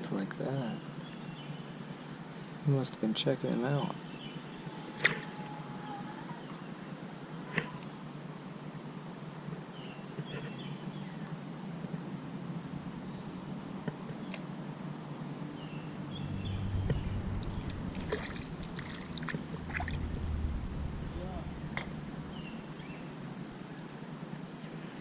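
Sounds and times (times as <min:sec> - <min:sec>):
low rumble: 0:16.1 - 0:23.6
water lapping around kayak: 0:16.4 - 0:20.7.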